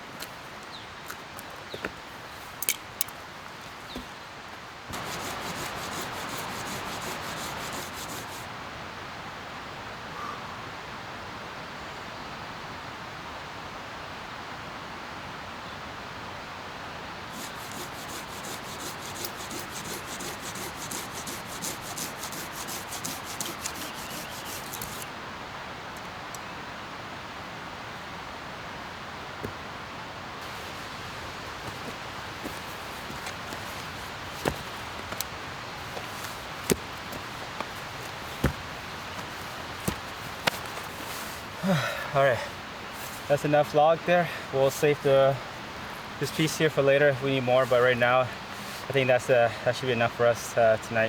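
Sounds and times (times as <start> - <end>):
hand saw cutting wood: 4.9 - 8.5, 17.3 - 25.1, 30.4 - 41.5.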